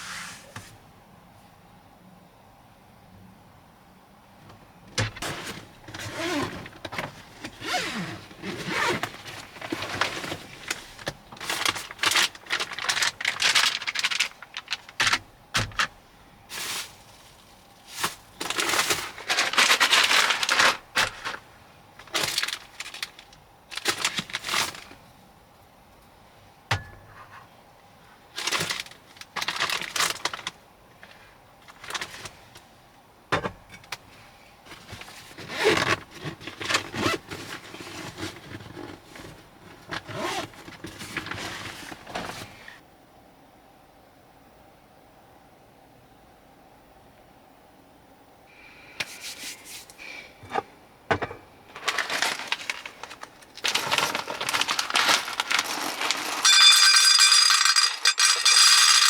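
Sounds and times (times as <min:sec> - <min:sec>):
objects rustling and clattering: 0:04.4 - 0:25.0, 0:26.7 - 0:27.6, 0:28.3 - 0:32.7, 0:33.3 - 0:42.8, 0:49.0 - 0:59.0.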